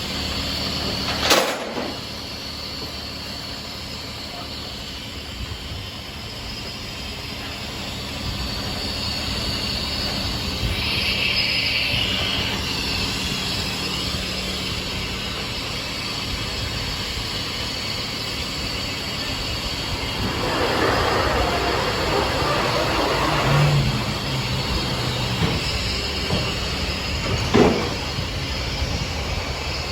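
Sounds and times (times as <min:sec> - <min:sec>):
machine humming: 0:17.8 - 0:28.4.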